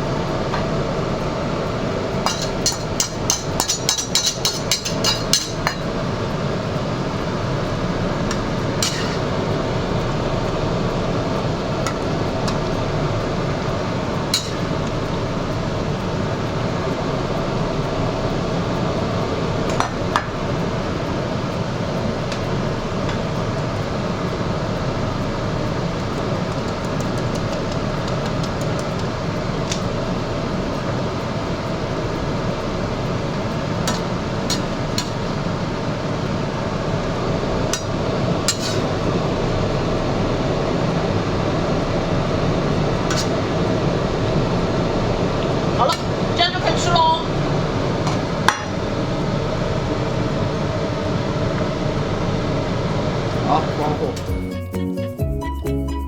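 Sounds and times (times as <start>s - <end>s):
stove rushing noise: 0.0s - 54.6s
utensil clinking on pot: 2.2s - 6.0s, 8.3s - 9.3s, 14.3s - 15.0s, 33.8s - 35.3s, 37.7s - 38.9s, 43.1s - 43.4s.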